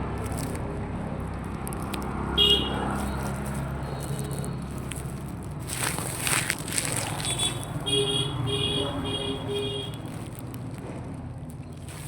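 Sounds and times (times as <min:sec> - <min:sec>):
vehicle horn short beeps: 0:02.4 - 0:02.8, 0:07.3 - 0:10.0.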